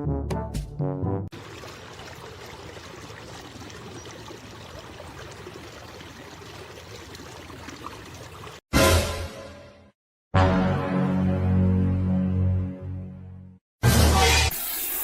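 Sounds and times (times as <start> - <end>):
steady rushing water: 1.3 - 8.6.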